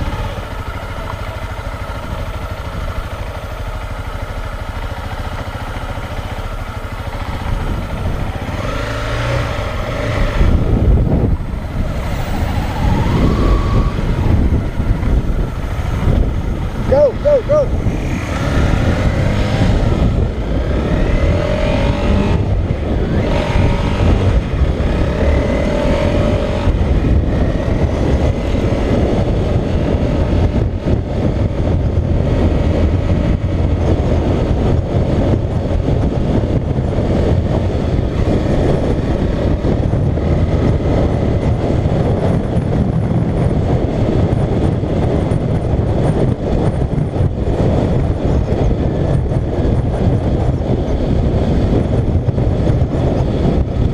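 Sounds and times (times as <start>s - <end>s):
motorcycle engine revving: 0.0s - 53.9s
wind rush on microphone: 0.0s - 53.9s.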